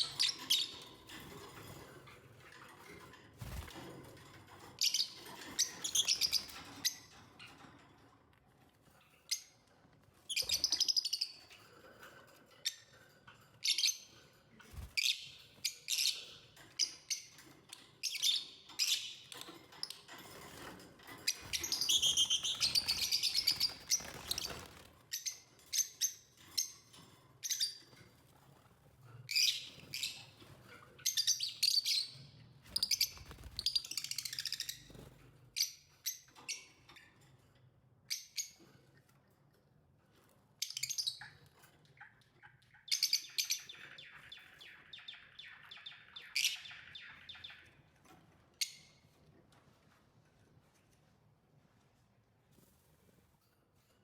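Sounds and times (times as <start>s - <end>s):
lovebirds chirping and chattering: 4.8s - 7.6s, 21.2s - 26.8s.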